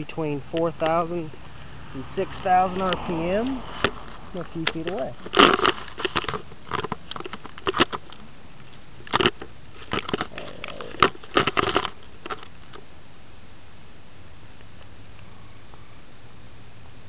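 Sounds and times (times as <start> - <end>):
rotary engine revving: 1.3 - 6.4.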